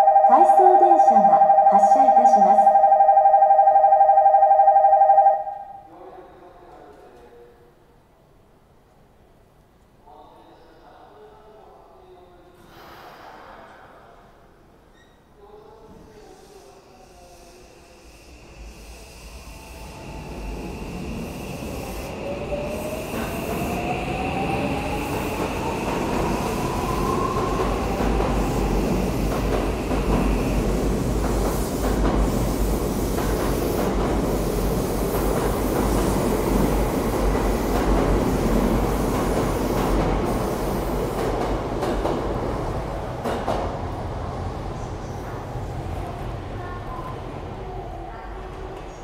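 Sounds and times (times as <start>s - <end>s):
steady high tone: 0.0s - 5.9s.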